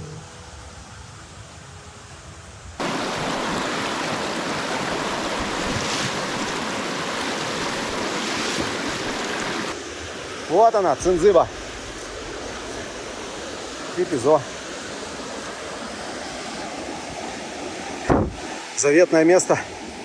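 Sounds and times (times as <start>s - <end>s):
faint outdoor ambience: 0.0s - 20.0s
fast river rushing: 2.8s - 20.0s.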